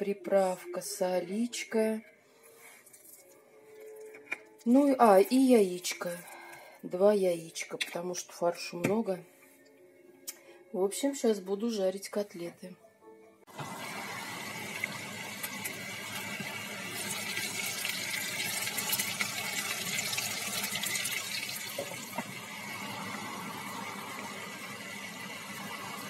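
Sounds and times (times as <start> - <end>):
meat sizzling in a pan: 13.6 - 26.0.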